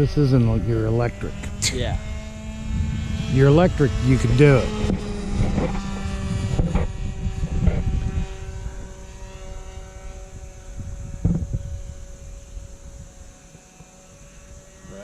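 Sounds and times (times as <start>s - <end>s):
low rumble: 0.0s - 13.1s
model airplane engine whine: 0.0s - 15.0s.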